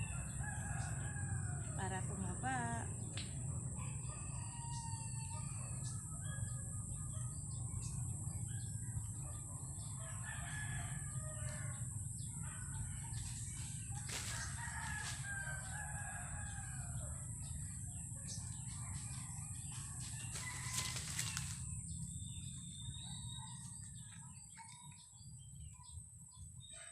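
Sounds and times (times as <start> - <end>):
rooster crowing: 0.0 - 2.1, 3.7 - 6.8, 9.8 - 13.2, 13.8 - 18.0, 18.6 - 21.6.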